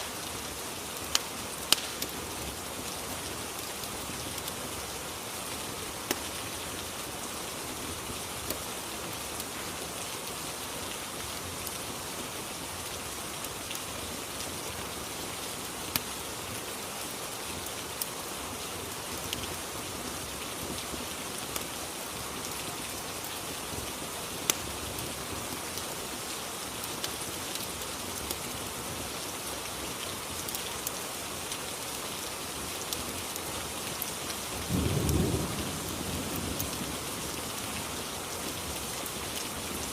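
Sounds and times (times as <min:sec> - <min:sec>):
rain hissing: 0:00.0 - 0:39.9
sharp clicks or pops: 0:01.7 - 0:02.1.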